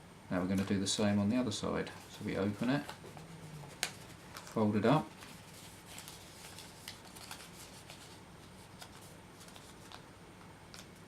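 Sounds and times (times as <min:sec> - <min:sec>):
paper rustling and crackling: 0:02.0 - 0:10.1.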